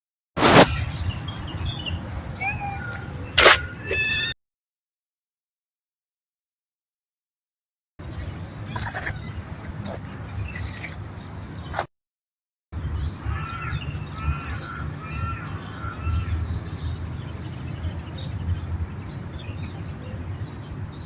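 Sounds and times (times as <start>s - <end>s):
bird calling: 1.6s - 4.3s.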